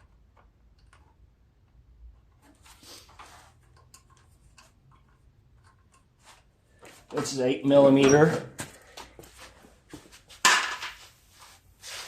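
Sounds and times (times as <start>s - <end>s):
tools clicking and scraping: 0.0s - 7.2s.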